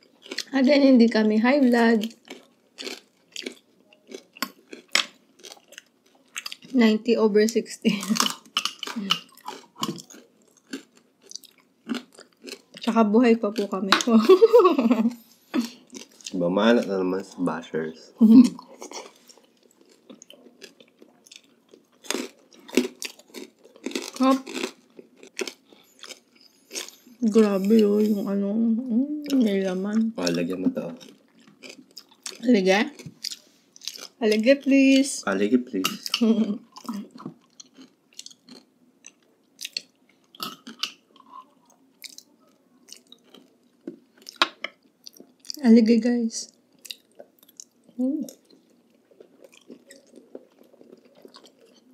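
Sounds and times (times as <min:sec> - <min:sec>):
chewing food: 0:00.0 - 0:14.5, 0:15.6 - 0:17.3, 0:18.4 - 0:28.0, 0:29.2 - 0:35.1, 0:35.8 - 0:45.7, 0:46.5 - 0:51.9
loud crunchy bites: 0:18.8 - 0:27.0.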